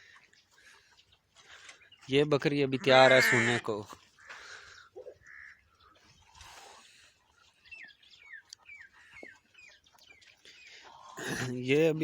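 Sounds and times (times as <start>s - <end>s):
bird chirps: 4.2s - 11.2s.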